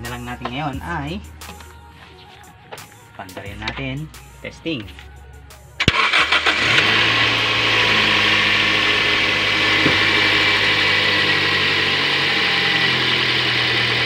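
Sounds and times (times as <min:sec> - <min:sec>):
car engine starting and idling: 0:05.8 - 0:14.0.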